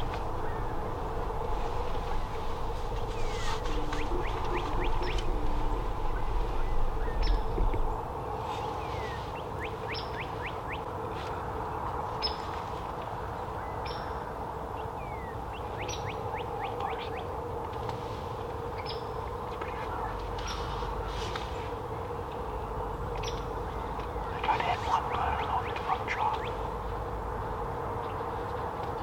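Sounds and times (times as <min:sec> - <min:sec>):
low rumble: 0:00.0 - 0:12.1
songbird singing: 0:00.0 - 0:29.0
steady hum: 0:00.0 - 0:29.0.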